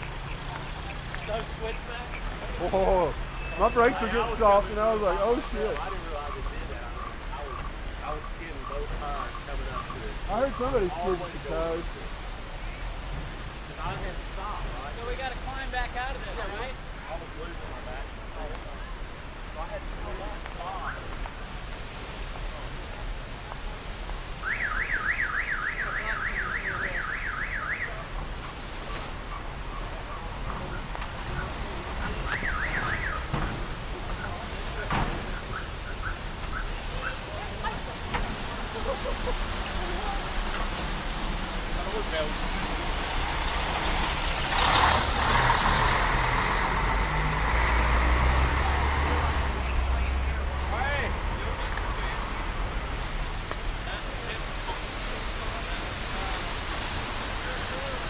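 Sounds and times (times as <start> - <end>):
rush of noise: 0.0 - 58.0
vehicle alarm warbling: 1.6 - 11.9, 24.3 - 37.4, 44.7 - 52.7.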